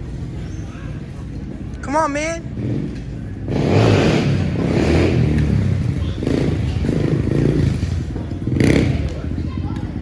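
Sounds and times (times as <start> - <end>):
motorcycle engine running: 2.4 - 10.0.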